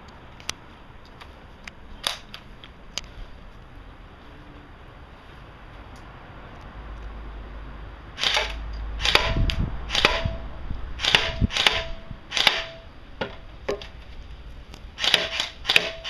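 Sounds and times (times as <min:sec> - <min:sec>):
airsoft gun shots cracking: 0:08.2 - 0:10.4, 0:11.0 - 0:12.8, 0:15.0 - 0:16.0.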